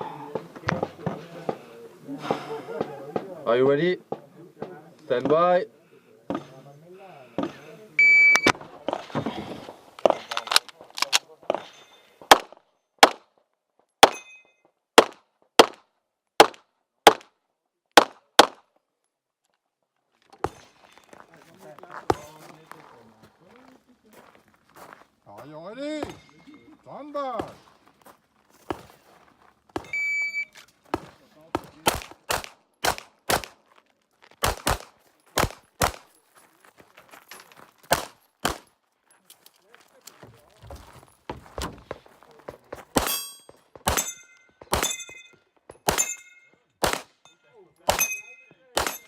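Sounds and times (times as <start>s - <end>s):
pistol shots: 12.3s - 13.3s, 18.0s - 18.6s, 31.6s - 33.6s, 34.4s - 36.1s, 37.9s - 38.7s, 42.9s - 45.2s, 45.8s - 46.2s, 46.8s - 47.2s, 47.8s - 49.0s.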